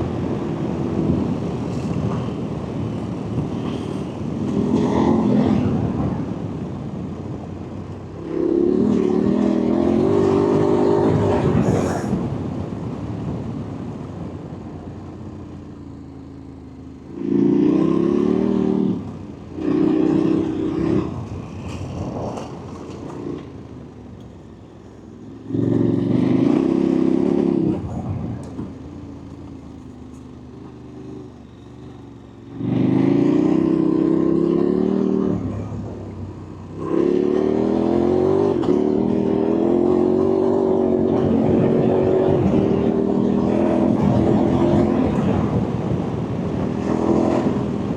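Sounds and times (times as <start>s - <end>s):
motorcycle engine revving hard: 0.0s - 6.6s, 8.2s - 12.5s, 17.1s - 23.5s, 25.4s - 28.8s, 30.9s - 47.9s
wind and road noise: 0.0s - 47.9s.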